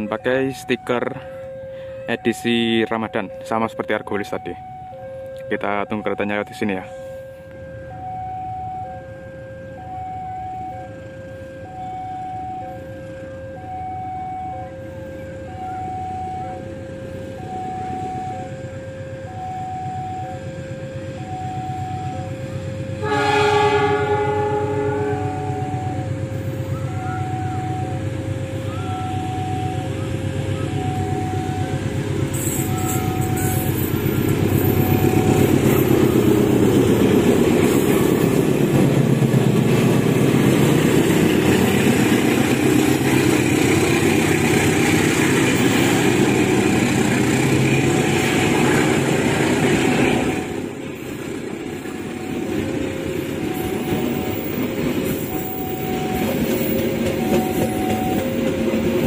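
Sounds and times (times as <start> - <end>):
level-crossing warning bell: 0.0 - 59.0
locomotive engine rumble: 6.8 - 59.0
train wheels clattering on rails: 31.9 - 59.0.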